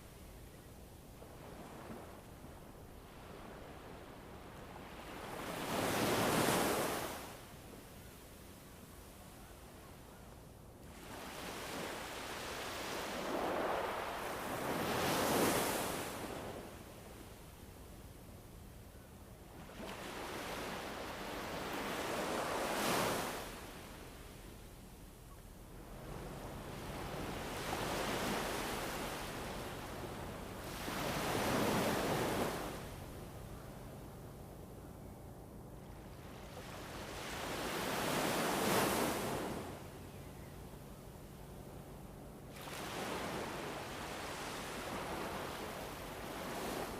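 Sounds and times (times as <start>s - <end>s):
rushing wind or surf: 1.2s - 7.5s, 10.9s - 17.2s, 19.7s - 24.2s, 25.8s - 33.7s, 36.3s - 40.0s, 42.5s - 46.9s.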